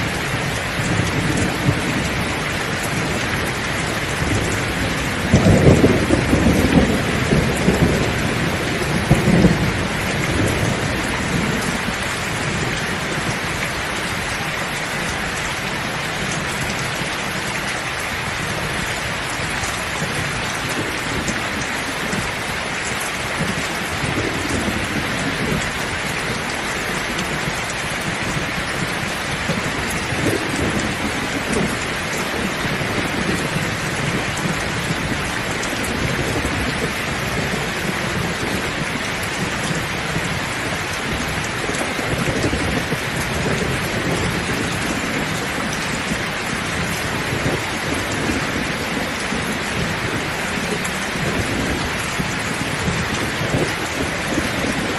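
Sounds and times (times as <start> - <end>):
heavy rain pouring: 0.0 - 54.9
thunder rumbling: 0.0 - 54.9.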